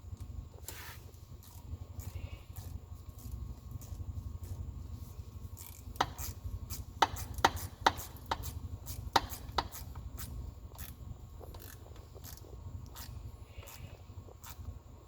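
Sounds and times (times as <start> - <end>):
steady low hum: 0.0 - 15.0
hand tools clicking and knocking: 5.6 - 14.6.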